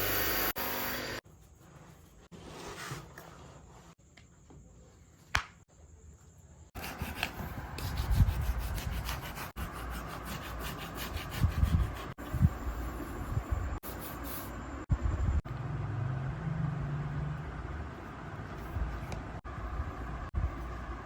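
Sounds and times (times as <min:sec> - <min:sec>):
rubbing strokes on a shoe: 0:06.8 - 0:14.6.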